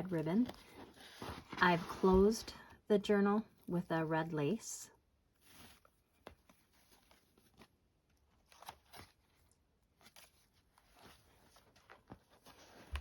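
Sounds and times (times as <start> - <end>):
paper and fabric rustling: 0.0 - 2.6, 5.3 - 13.0.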